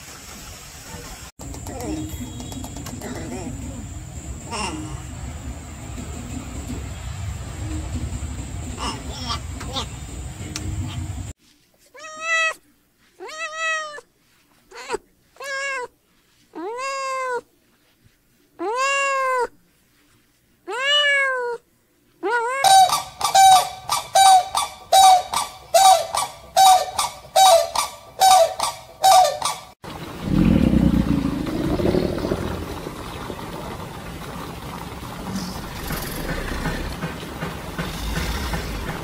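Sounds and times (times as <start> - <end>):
animal calling: 22.2 - 32.8.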